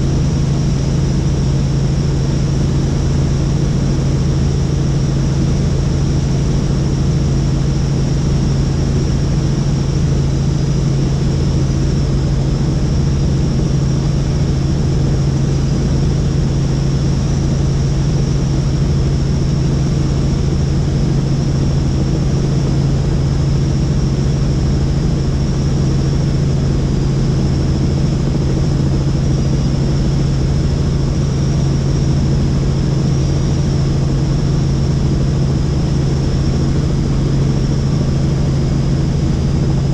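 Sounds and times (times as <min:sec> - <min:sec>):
helicopter drone and whine: 0:00.0 - 0:39.9.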